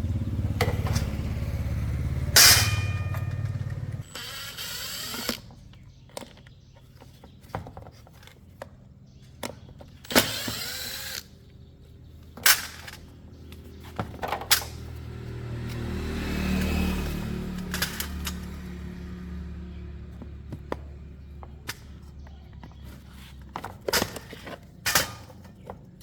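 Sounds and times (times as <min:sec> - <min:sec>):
metal tools clanking: 0:00.3 - 0:08.5, 0:12.2 - 0:15.0, 0:16.6 - 0:19.2, 0:20.7 - 0:26.0.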